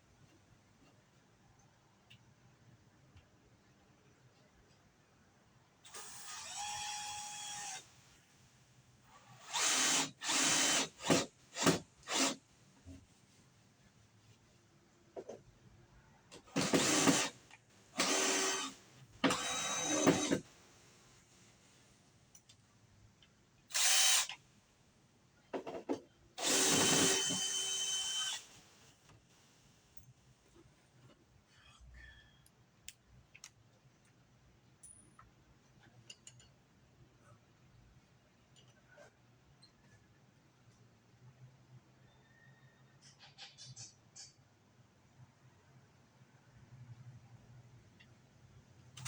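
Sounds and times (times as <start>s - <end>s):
power drill whining: 5.9s - 7.8s, 9.4s - 12.4s, 16.5s - 17.4s, 18.0s - 20.6s, 23.7s - 24.4s, 26.4s - 28.7s.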